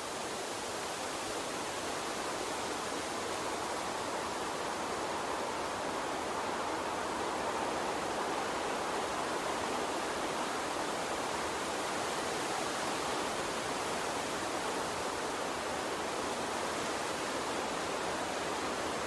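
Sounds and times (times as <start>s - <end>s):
water stream flowing: 0.0s - 19.0s.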